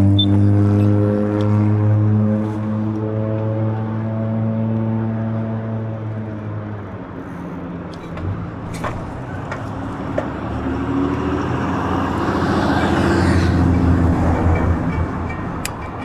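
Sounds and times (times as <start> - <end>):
road noise: 0.4 - 16.0
sharp clicks: 15.5 - 16.0.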